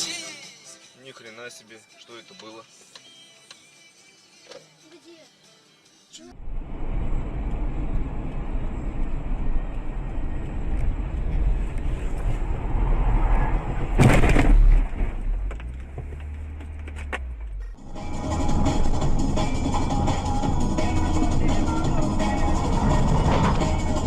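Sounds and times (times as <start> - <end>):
car engine and tyre noise: 6.3 - 24.0
low hum: 6.3 - 24.0
loud crash: 12.7 - 15.5, 22.2 - 24.0.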